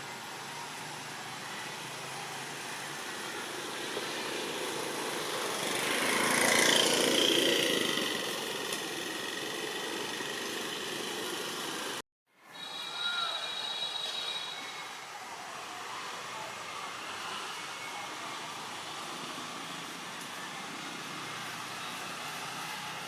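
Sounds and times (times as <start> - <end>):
engine passing by: 0.0 - 12.0.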